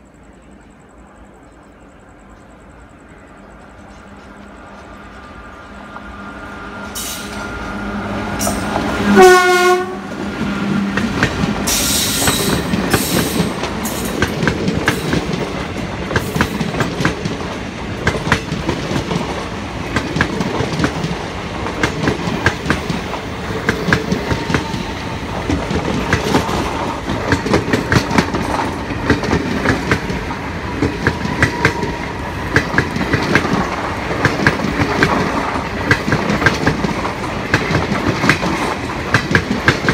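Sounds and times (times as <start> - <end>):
train wheels clicking over rail joints: 3.6 - 9.2, 10.2 - 39.9
train horn blast: 6.9 - 10.3.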